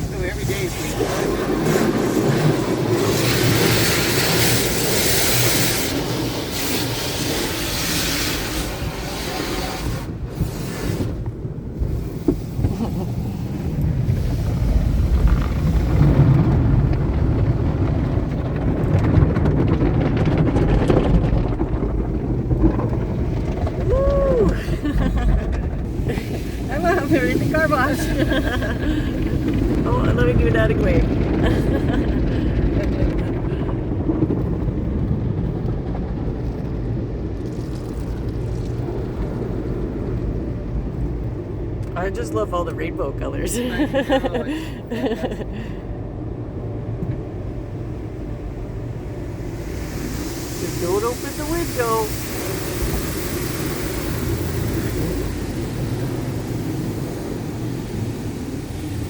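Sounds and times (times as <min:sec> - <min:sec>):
water and brushes on car body: 0:00.0 - 0:16.7, 0:24.5 - 0:33.4, 0:47.5 - 0:59.0
car wash machinery rumble: 0:00.0 - 0:59.0
patter of spray: 0:03.0 - 0:11.2, 0:49.4 - 0:59.0.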